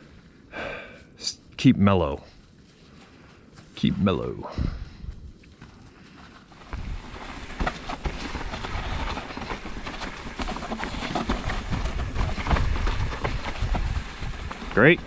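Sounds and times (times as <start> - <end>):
wind rumble on microphone: 4.4 - 5.4, 6.6 - 7.3, 11.3 - 15.0
bike rattling over rocky trail: 5.3 - 15.0.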